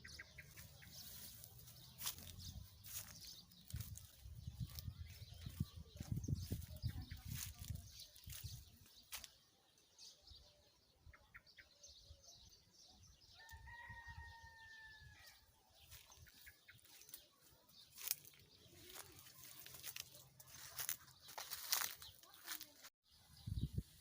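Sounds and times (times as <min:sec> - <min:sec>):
rooster crowing: 0:13.4 - 0:15.4.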